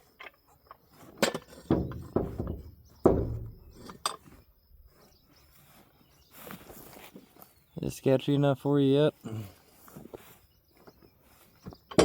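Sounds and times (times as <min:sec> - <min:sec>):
heavy knocks and clanks: 0:01.3 - 0:04.0.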